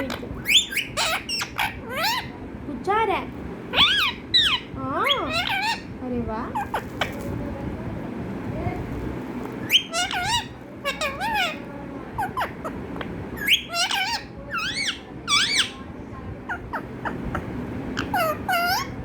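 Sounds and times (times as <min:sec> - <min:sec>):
parrot squeaky warbling calls: 0:00.0 - 0:02.4, 0:03.7 - 0:05.9, 0:06.5 - 0:07.2, 0:09.6 - 0:15.8, 0:16.5 - 0:19.0.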